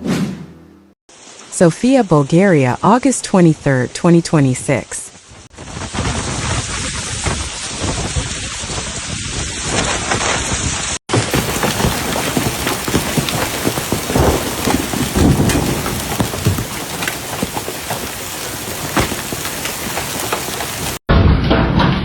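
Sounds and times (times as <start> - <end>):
hail and rain pelting: 5.3 - 21.0.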